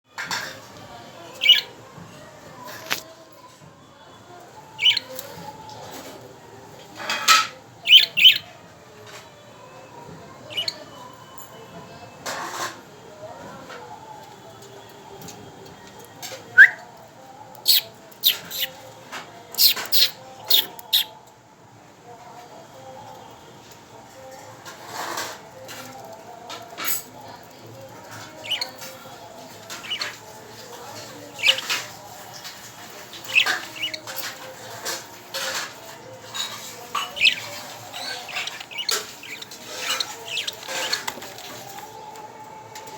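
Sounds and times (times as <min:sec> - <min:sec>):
budgerigars chirping: 0:01.4 - 0:01.7, 0:04.8 - 0:05.2, 0:07.9 - 0:08.4, 0:28.4 - 0:29.0, 0:29.7 - 0:30.2, 0:30.9 - 0:32.2, 0:32.8 - 0:35.5, 0:36.3 - 0:41.6.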